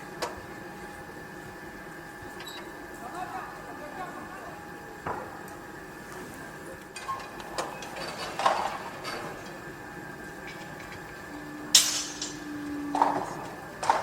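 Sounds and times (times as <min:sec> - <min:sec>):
faint hum: 0:00.0 - 0:14.0
metal clanks and knocks: 0:11.7 - 0:14.0.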